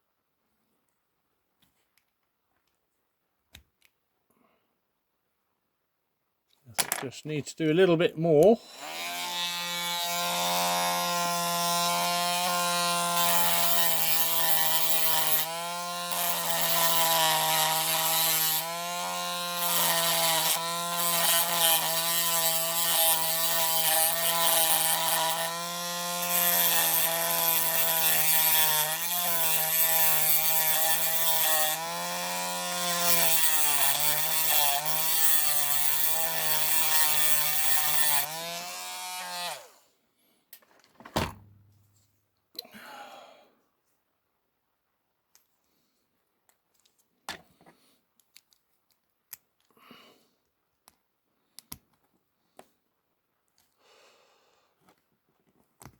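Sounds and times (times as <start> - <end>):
rotary tool grinding metal: 8.4 - 39.8.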